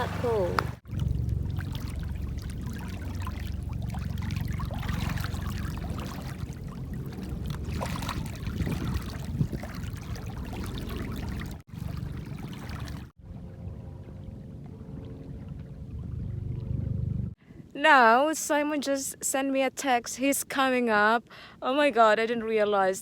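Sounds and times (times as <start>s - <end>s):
small waves lapping: 0.0s - 16.7s.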